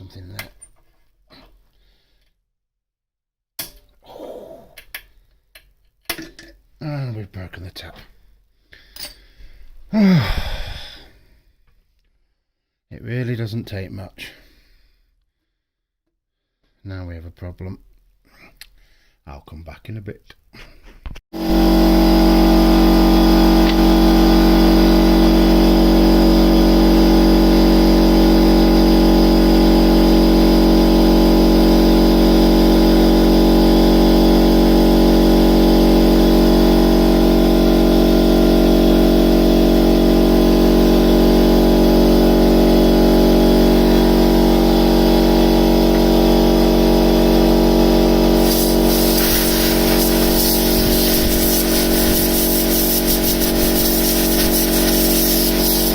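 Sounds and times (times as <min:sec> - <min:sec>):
electric motor humming: 0:21.4 - 0:55.9
hissing rasping noise: 0:48.4 - 0:55.9.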